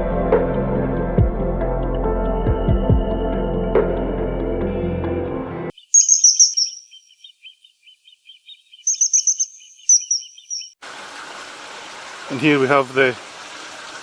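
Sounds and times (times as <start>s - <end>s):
birds trilling: 5.8s - 10.8s
repeated chirps: 5.8s - 10.8s.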